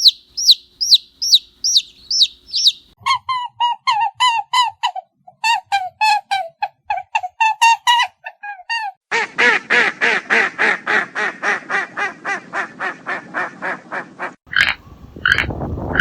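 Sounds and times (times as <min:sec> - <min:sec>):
animal rapid repeated calls: 0:00.0 - 0:03.0, 0:14.5 - 0:16.0
animal sharp spaced calls: 0:00.0 - 0:03.0, 0:14.5 - 0:16.0.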